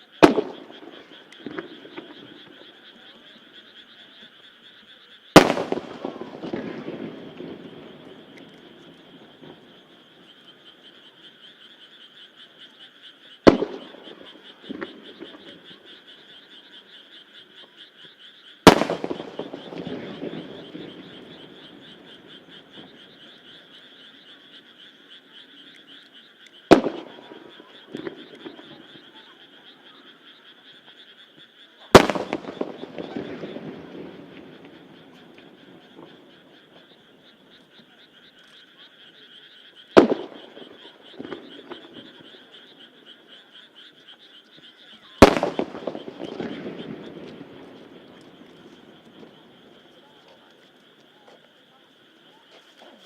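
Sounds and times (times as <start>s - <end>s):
frogs croaking: 0.0s - 53.0s
smaller firework pops: 0.2s - 2.6s, 5.4s - 9.8s, 13.4s - 15.6s, 18.6s - 23.2s, 26.7s - 29.1s, 31.9s - 36.9s, 40.0s - 42.4s, 45.2s - 51.5s
firework shells bursting: 5.4s - 9.6s, 18.6s - 22.0s, 26.7s - 28.7s, 31.9s - 36.2s, 45.2s - 49.4s.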